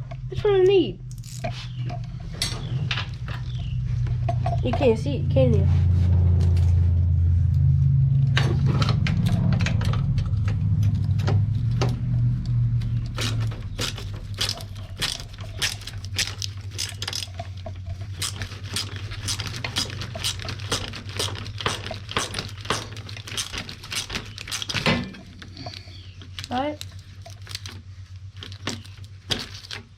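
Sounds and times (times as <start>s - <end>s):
low hum: 0.0s - 29.9s
metal tools clattering: 1.2s - 3.6s
socket ratchet clicking: 18.2s - 24.9s.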